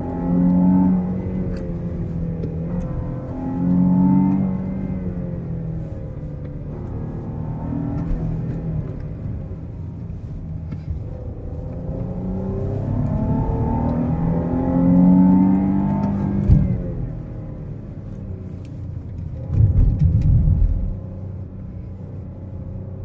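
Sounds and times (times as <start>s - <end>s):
car engine accelerating: 0.0s - 23.0s
short thump: 16.3s - 17.0s.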